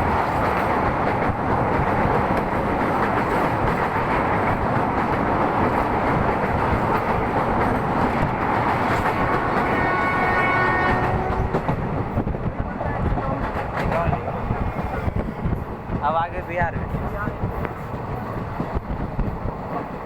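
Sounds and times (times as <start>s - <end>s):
train wheels rumbling on track: 0.0s - 20.0s
train horn: 9.2s - 11.7s.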